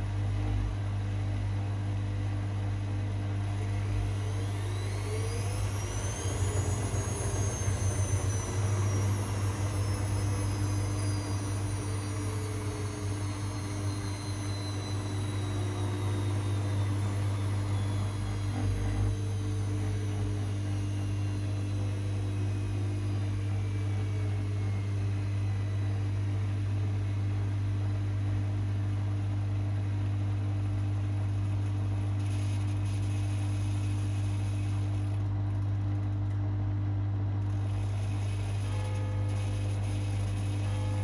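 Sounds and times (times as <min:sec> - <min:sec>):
washing machine humming: 0:00.0 - 0:29.9
faint whine falling in pitch: 0:00.0 - 0:41.0.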